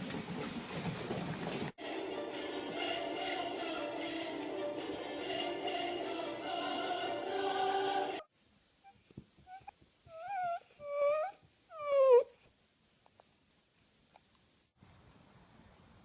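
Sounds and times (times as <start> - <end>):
background music: 1.8 - 8.3
wavering animal cries: 8.9 - 12.4.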